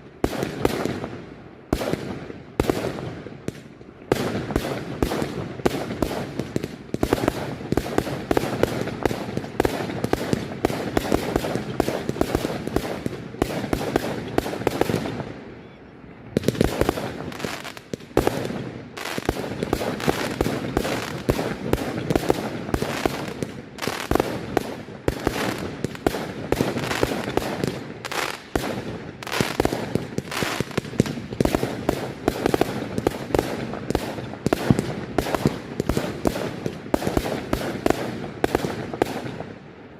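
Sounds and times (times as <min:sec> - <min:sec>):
fireworks bangs and crackling: 0:00.0 - 0:15.6, 0:16.3 - 0:39.9.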